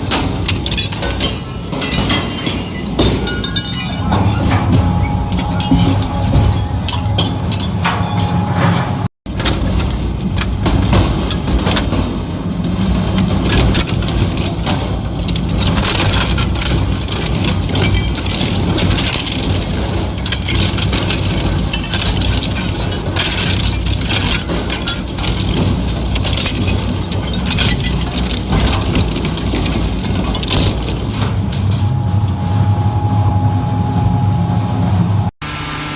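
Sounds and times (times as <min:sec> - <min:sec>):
material cracking and clattering: 0:00.0 - 0:32.9
low engine drone: 0:03.8 - 0:09.1, 0:31.7 - 0:35.9.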